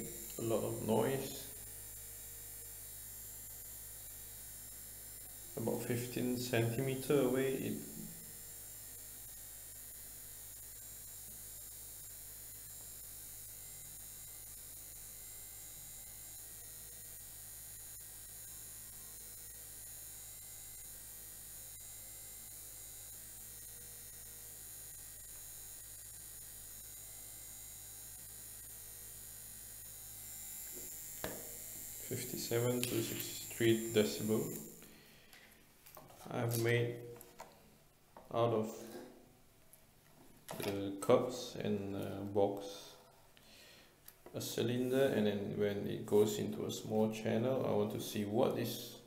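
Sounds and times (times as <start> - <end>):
electric fan humming: 0.0 - 49.0.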